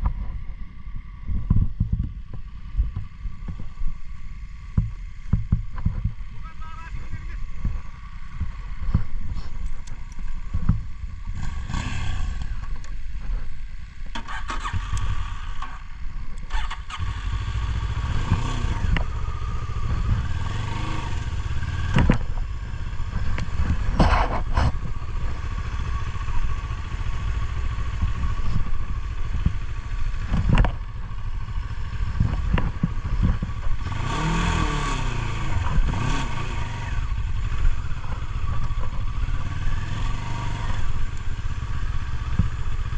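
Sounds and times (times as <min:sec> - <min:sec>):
motorcycle engine revving: 0:00.0 - 0:42.9
sharp knocks and clatter: 0:04.7 - 0:06.2.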